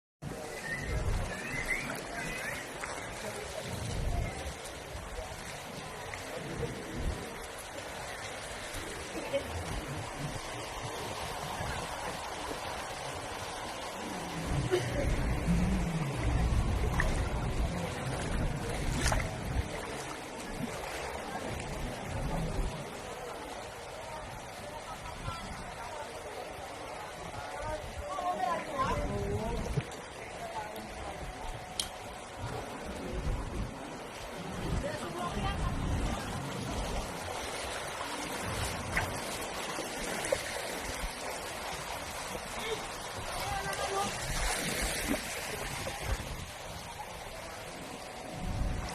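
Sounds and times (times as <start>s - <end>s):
floodwater sloshing and splashing: 0.2s - 48.9s
low rumble: 9.7s - 20.8s.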